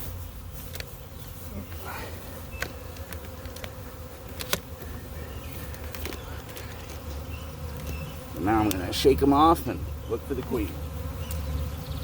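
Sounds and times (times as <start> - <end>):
bee swarm buzzing: 0.0 - 12.0
sharp clicks: 2.6 - 4.9.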